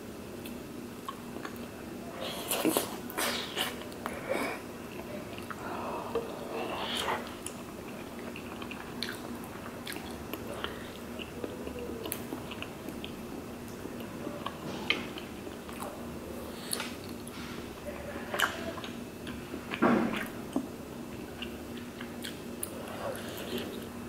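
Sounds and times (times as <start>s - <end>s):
wet chewing: 2.3s - 17.6s, 18.2s - 24.0s.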